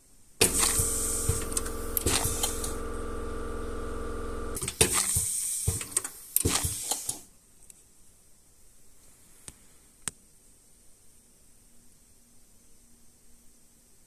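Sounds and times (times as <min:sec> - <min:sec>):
high hiss: 0:00.4 - 0:02.9, 0:04.6 - 0:07.2
scattered clicks: 0:00.4 - 0:02.9
small motor humming: 0:00.4 - 0:04.6.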